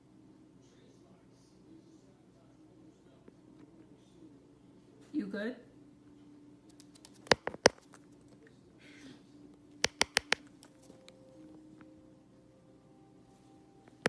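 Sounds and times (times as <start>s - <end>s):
parrot clicks and taps: 6.9s - 7.9s, 9.8s - 10.5s.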